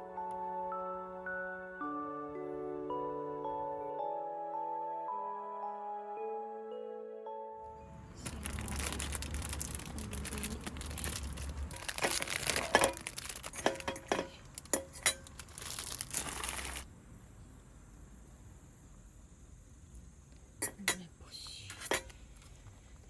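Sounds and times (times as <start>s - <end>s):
packaging crinkling: 7.8s - 16.9s.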